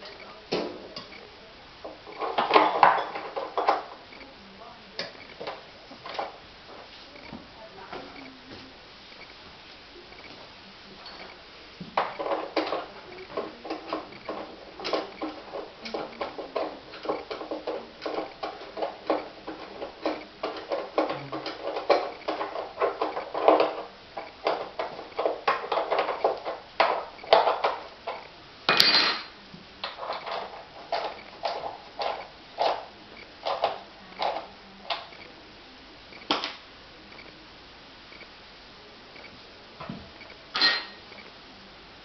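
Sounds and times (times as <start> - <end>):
hard objects clattering: 1.8 - 4.1, 11.1 - 35.2.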